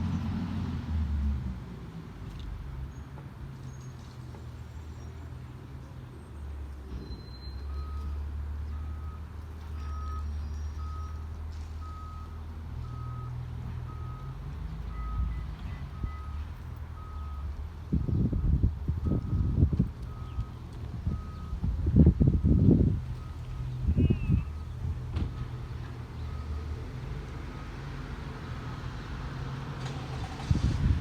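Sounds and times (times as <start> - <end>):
diesel engine rumbling: 0.0 - 31.0
reversing alarm beeping: 7.0 - 16.4, 17.0 - 20.5.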